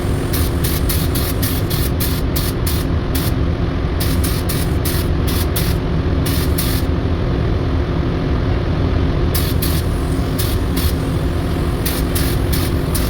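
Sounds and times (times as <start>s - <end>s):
spray gun hissing: 0.0s - 3.3s, 4.0s - 6.9s, 9.4s - 13.0s
low machine hum: 0.0s - 13.0s.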